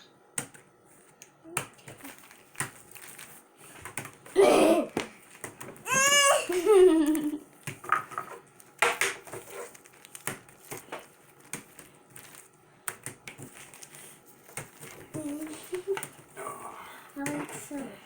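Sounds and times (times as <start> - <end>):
child's vocal sound: 4.4 - 5.0, 5.9 - 7.3
small objects clicking and tapping: 6.5 - 16.3.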